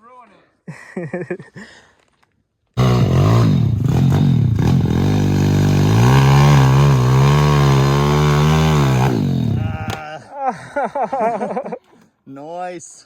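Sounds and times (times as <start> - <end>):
pit bike engine revving: 2.8 - 10.0.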